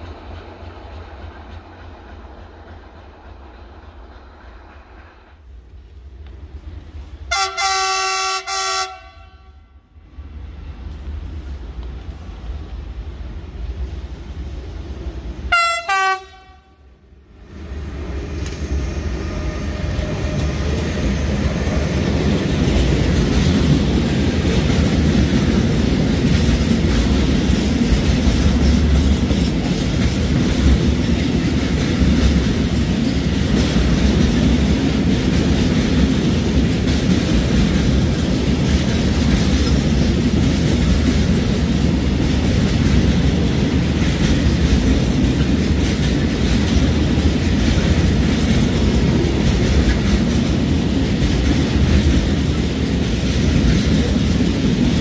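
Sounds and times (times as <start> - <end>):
freight train rumbling past: 0.0 - 55.0
wheels clicking over rail joints: 19.9 - 55.0.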